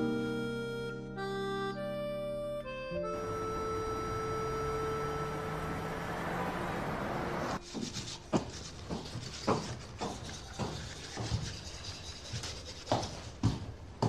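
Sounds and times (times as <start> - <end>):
steady background noise: 3.1 - 14.0.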